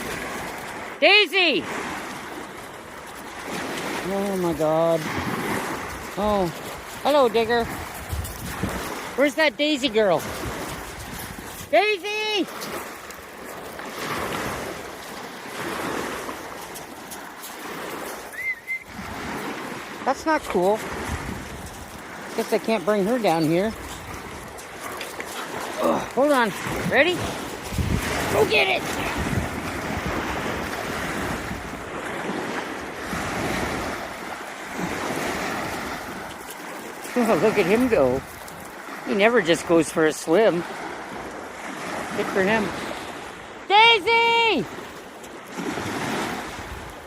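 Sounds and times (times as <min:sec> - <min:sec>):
ocean surf washing ashore: 0:00.0 - 0:47.0
wind buffeting microphone: 0:01.6 - 0:39.8, 0:44.7 - 0:47.0
short high whistle-like tone: 0:18.3 - 0:19.0.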